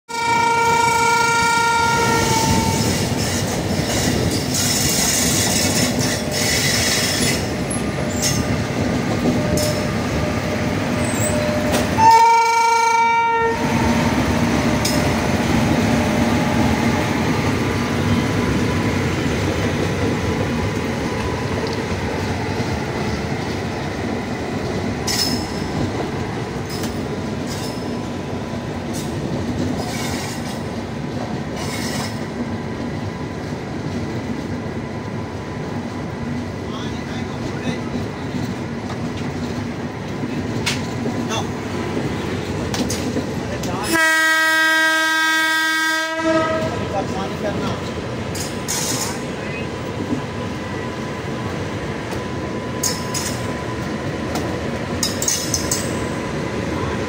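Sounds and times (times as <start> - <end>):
locomotive horn blast: 0.1 - 2.9, 12.0 - 13.9, 43.8 - 46.9
train rumbling by: 0.1 - 57.0.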